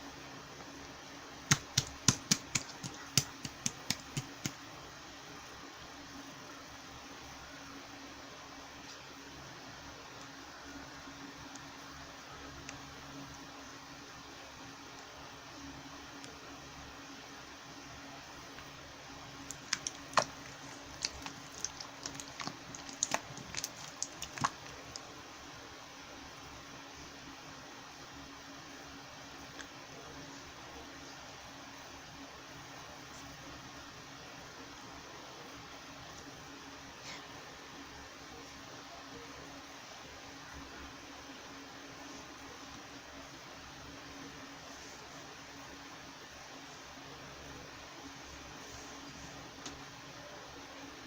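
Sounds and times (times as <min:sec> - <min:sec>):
faint steady hiss: 0:00.0 - 0:51.0
slime clicking and popping: 0:01.5 - 0:04.6, 0:19.5 - 0:25.0.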